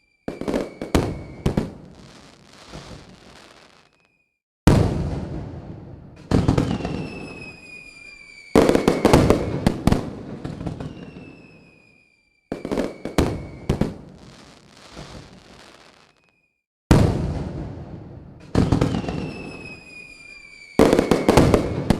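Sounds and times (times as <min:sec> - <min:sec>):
firework whistles: 0:00.0 - 0:04.4, 0:06.2 - 0:16.6, 0:18.4 - 0:21.9
crackling firework bangs: 0:00.2 - 0:04.1, 0:04.7 - 0:21.9
firework booms: 0:00.3 - 0:03.6, 0:04.7 - 0:11.8, 0:12.5 - 0:15.8, 0:16.9 - 0:21.9.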